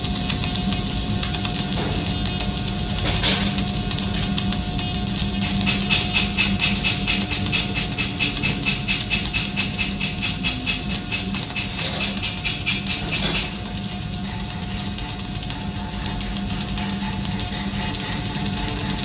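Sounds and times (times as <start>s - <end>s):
steady hum: 0.0s - 19.0s
welding arc crackling hiss: 0.0s - 19.0s.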